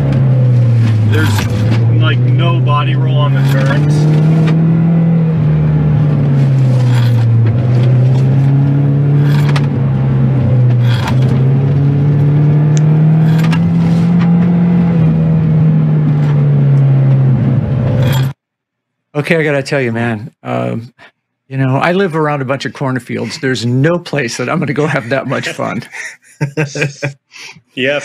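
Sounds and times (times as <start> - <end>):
car engine revving: 0.0 - 18.4.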